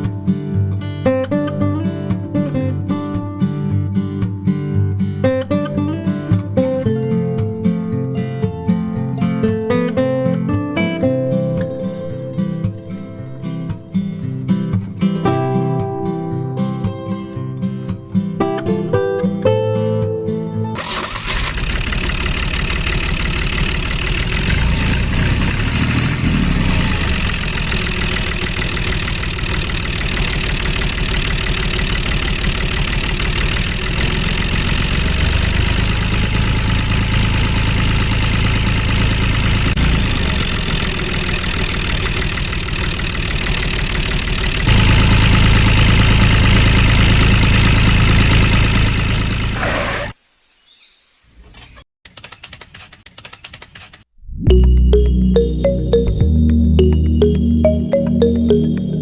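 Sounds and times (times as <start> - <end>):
small tractor motor rattling: 20.8 - 50.2.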